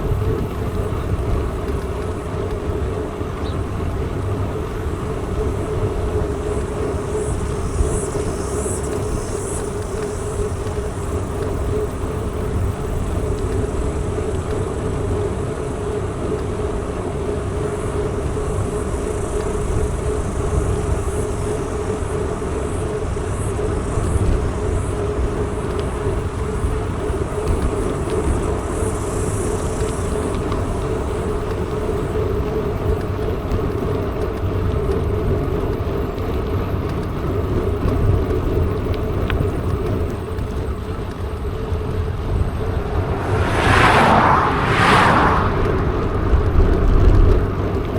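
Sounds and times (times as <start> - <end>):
wind rumble on microphone: 37.7 - 47.9
bike tyre hum: 40.2 - 47.8.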